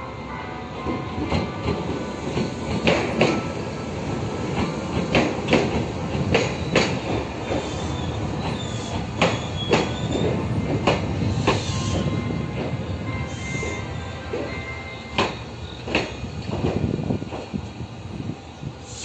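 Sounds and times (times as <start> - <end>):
train cars rumbling past: 0.0 - 19.0
wheels clacking over rail joints: 4.4 - 17.6
faint high wheel squeal: 7.5 - 15.9.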